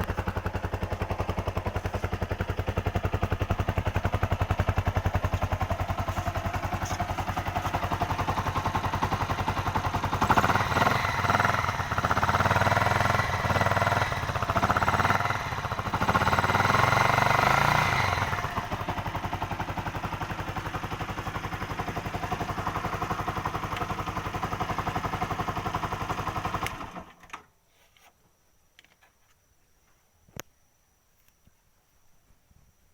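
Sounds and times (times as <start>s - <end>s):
motorcycle engine idling and revving: 0.0s - 27.2s.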